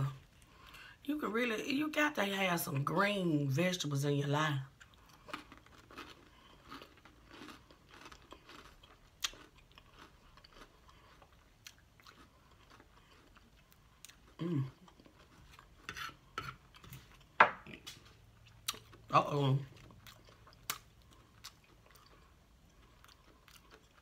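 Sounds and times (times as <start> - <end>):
crunchy wet chewing: 4.8 - 19.1, 19.7 - 24.0.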